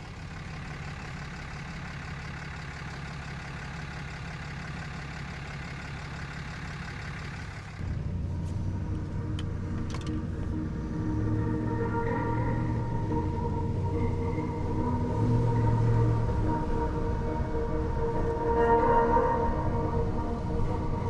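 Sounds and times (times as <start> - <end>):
vehicle engine and road noise: 0.0 - 21.0
music with long held tones: 8.0 - 21.0.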